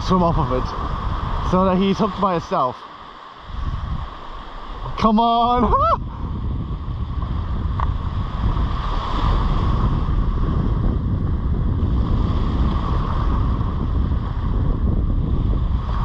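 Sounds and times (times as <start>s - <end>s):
surf washing on beach: 0.0s - 16.0s
wind on microphone: 0.0s - 16.0s.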